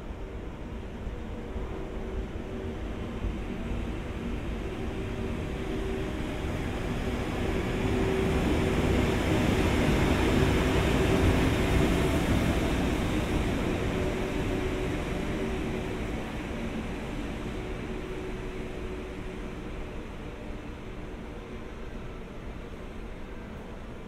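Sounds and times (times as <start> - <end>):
train rumbling past: 0.0 - 24.0.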